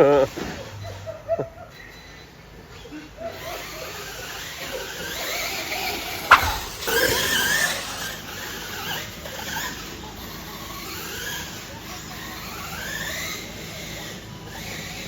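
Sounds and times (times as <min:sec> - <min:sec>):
rc truck motors whining: 0:03.4 - 0:15.0
sharp knock: 0:06.3 - 0:08.0.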